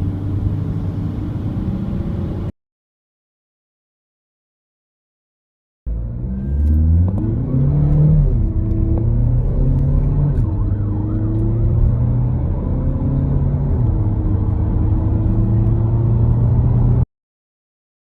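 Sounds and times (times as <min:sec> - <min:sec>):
car engine accelerating hard: 0:05.9 - 0:17.0.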